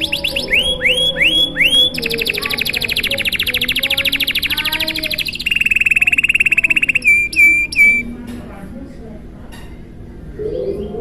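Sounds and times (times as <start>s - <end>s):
canary singing: 0.0s - 8.2s.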